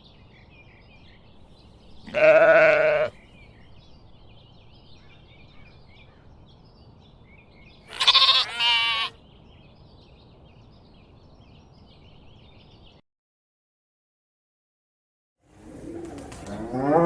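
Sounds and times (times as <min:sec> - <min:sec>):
sheep bleating: 0:02.0 - 0:03.2, 0:07.9 - 0:09.2.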